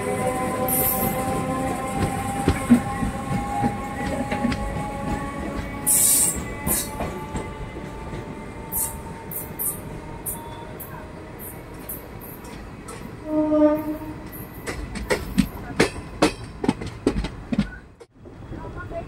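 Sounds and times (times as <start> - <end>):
passenger train running on rails: 0.0 - 19.0
train wheels squealing: 0.1 - 12.5.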